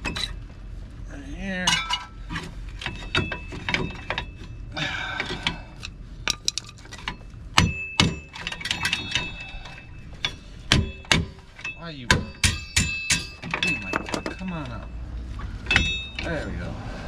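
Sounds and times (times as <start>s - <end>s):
sharp metal knocks: 2.8s - 4.4s, 6.3s - 9.4s, 10.1s - 14.6s, 15.6s - 16.3s
metallic clicks and clinks: 5.4s - 7.2s.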